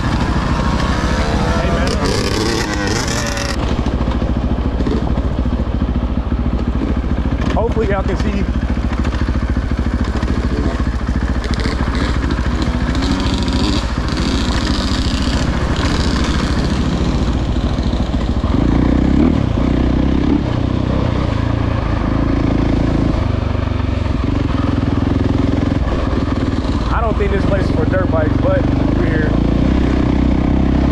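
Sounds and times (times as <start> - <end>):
clatter: 0.0 - 23.4
dirt bike engine running: 0.0 - 30.9.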